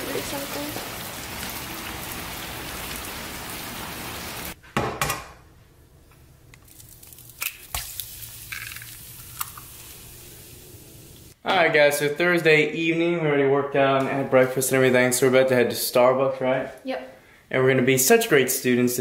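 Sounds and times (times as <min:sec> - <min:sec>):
steady rain: 0:00.0 - 0:04.6
egg cracking into a pan: 0:06.6 - 0:10.0
egg frying with light clicks: 0:06.6 - 0:10.0.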